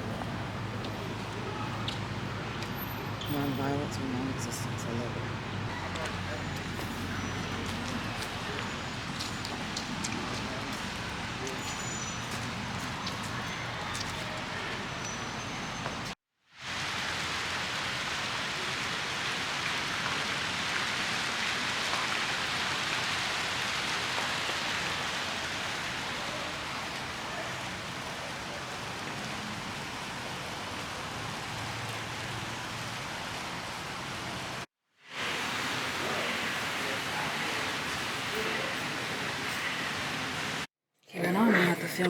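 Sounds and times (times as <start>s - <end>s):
steady rushing hiss: 33.5s - 40.7s.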